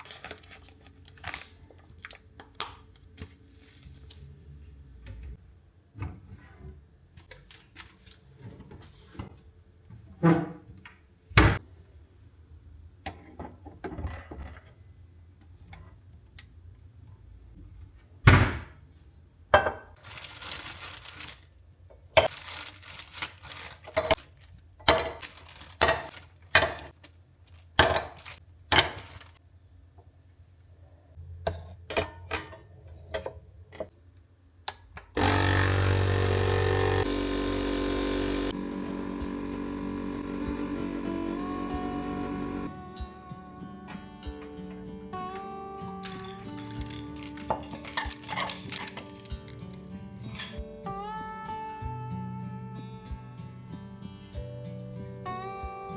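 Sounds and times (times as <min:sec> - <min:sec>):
dishes and utensils clinking: 0:46.0 - 0:49.6.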